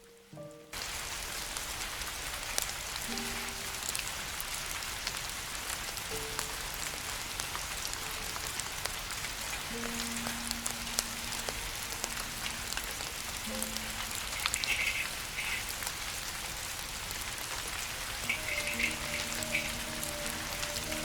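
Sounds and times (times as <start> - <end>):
rain falling: 0.0 - 21.0
campfire crackling and popping: 0.8 - 21.0.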